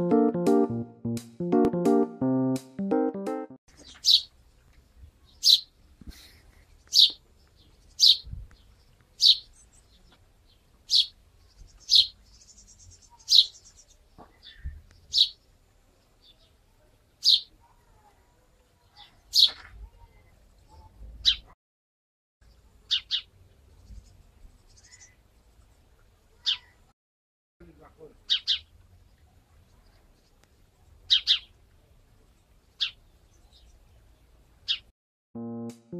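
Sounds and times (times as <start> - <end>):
sparrow chirping: 3.8 - 4.3, 5.3 - 5.7, 6.8 - 15.4, 17.2 - 17.5, 22.9 - 25.2, 28.3 - 28.7, 31.1 - 31.5, 32.7 - 34.0, 34.6 - 34.9.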